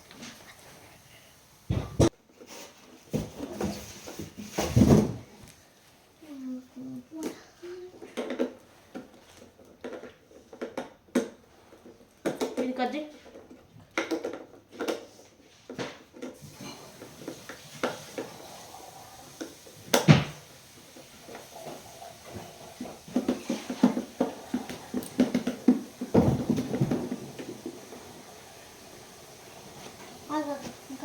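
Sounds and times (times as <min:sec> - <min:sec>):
hard objects knocking and clattering: 0:08.1 - 0:15.1, 0:21.0 - 0:28.6.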